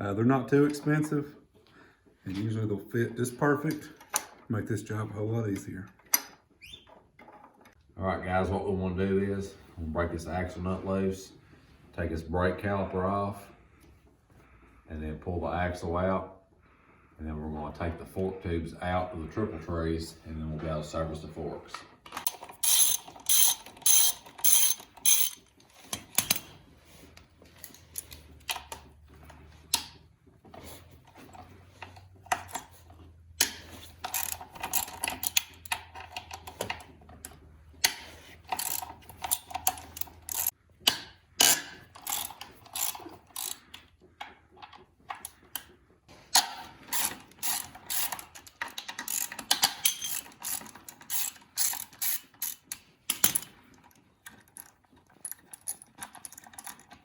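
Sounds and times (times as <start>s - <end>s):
ratchet wrench clicking: 22.2s - 25.4s, 37.8s - 40.5s, 41.4s - 43.6s, 46.9s - 53.4s.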